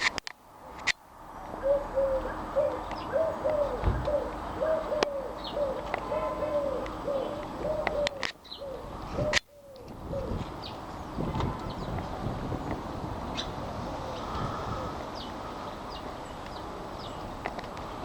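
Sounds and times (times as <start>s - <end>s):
pigeon cooing: 1.6s - 10.5s, 13.4s - 15.1s
small birds chirping: 1.8s - 17.9s.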